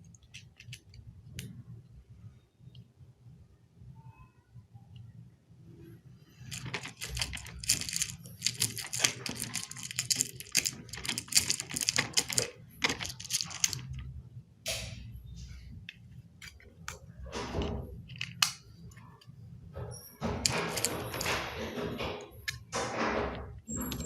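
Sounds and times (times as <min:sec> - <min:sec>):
plastic model pieces clicking: 0:00.0 - 0:01.5, 0:06.5 - 0:14.0, 0:16.4 - 0:17.0, 0:18.1 - 0:18.6.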